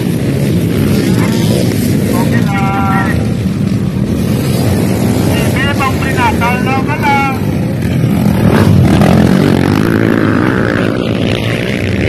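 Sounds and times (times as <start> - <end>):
dirt bike engines droning: 0.0 - 12.0.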